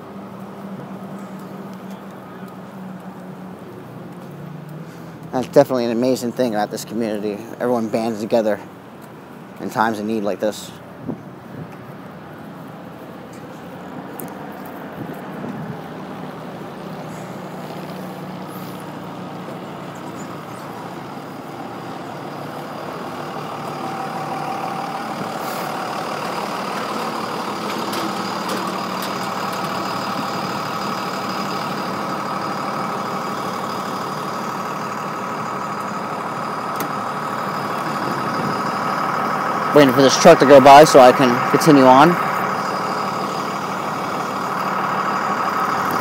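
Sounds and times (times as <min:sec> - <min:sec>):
truck engine running: 0:00.0 - 0:46.0.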